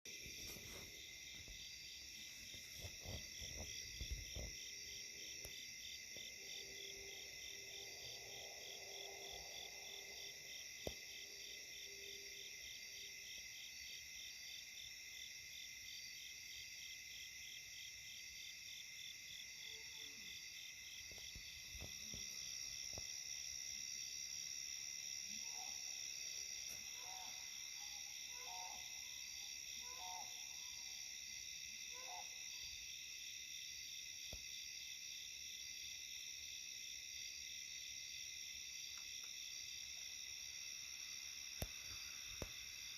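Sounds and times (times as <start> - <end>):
night insect chorus: 0.1 - 42.9
click: 38.9 - 39.4.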